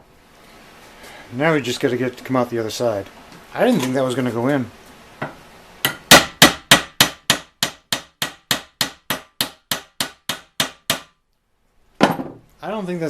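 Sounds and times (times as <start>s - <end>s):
hammer striking steel pin: 5.8s - 11.1s.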